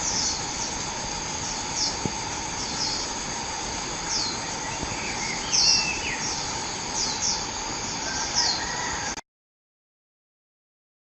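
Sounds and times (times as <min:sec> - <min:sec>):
insects droning: 0:00.0 - 0:09.2
bird chirping: 0:04.0 - 0:07.5.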